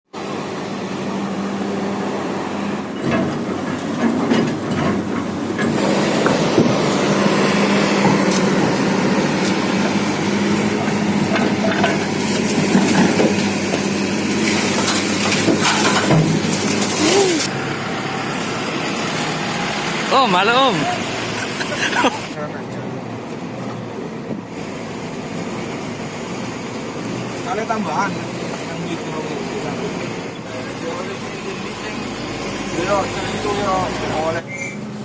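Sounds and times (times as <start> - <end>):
heavy diesel machinery humming: 0.1 - 35.0
knocks and clatter: 3.0 - 6.8, 10.8 - 17.0.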